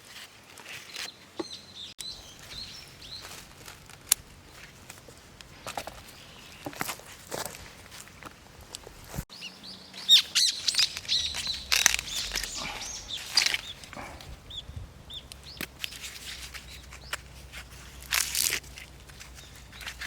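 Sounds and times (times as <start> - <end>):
small birds chirping: 0.9 - 4.8, 5.8 - 7.1, 9.3 - 20.0.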